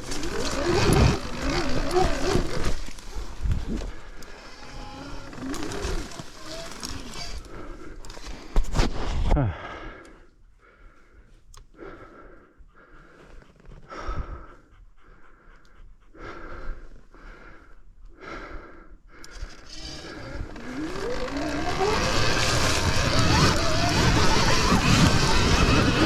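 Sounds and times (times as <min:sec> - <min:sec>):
electric motor whine rising: 0:00.0 - 0:02.9, 0:19.6 - 0:26.0
rush of riding noise: 0:00.0 - 0:03.9, 0:19.9 - 0:26.0
heavy rhythmic breathing: 0:09.4 - 0:26.0.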